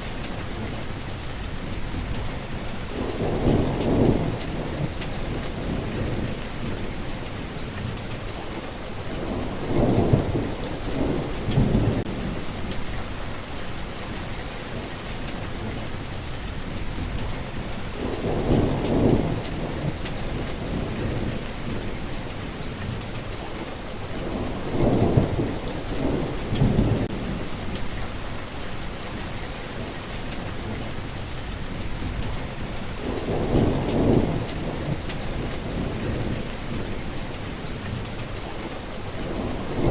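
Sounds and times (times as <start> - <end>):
steady rain falling: 0.0 - 39.9
thunder rolling: 1.7 - 7.4, 9.1 - 14.4, 16.7 - 22.4, 24.1 - 29.4, 30.0 - 37.4, 39.2 - 39.9.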